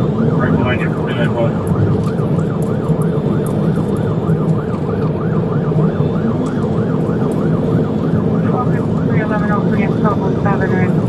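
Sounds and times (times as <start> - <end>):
engine and road noise: 0.0 - 11.0
police siren yelping: 0.0 - 11.0.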